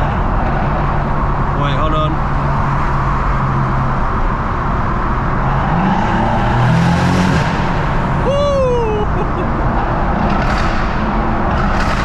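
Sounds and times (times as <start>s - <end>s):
car engine revving: 2.3s - 8.4s.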